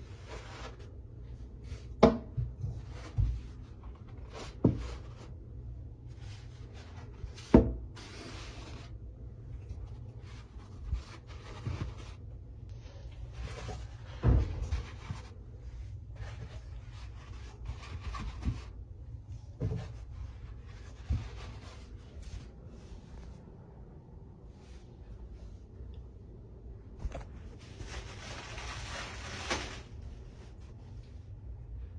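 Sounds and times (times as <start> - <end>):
rustling and scraping handling: 0.0 - 23.5, 26.9 - 31.4.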